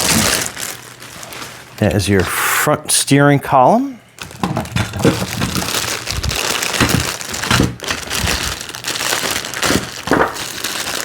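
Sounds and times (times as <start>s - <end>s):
plastic bags crinkling: 0.0s - 2.2s, 4.2s - 11.0s
parts knocking and clicking: 4.3s - 5.6s.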